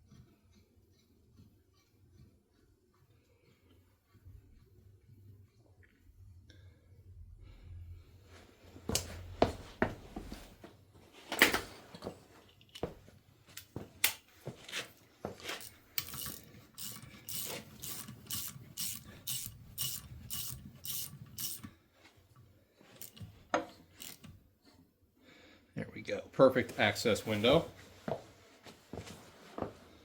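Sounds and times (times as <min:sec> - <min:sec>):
hand ratchet clicking: 0:15.4 - 0:21.7, 0:23.0 - 0:24.4.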